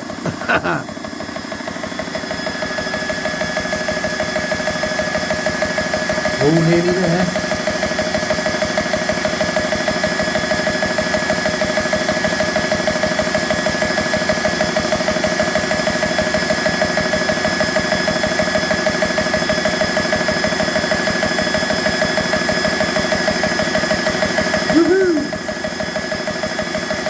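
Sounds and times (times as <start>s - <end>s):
air compressor pump pulsing: 0.0s - 27.0s
person speaking: 0.3s - 0.9s, 6.4s - 7.5s, 24.7s - 25.4s.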